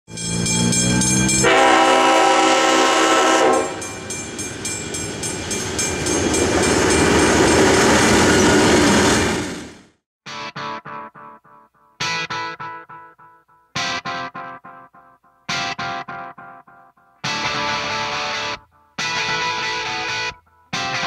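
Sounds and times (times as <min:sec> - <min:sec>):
train rushing past: 0:00.1 - 0:10.0
train horn: 0:01.4 - 0:04.0.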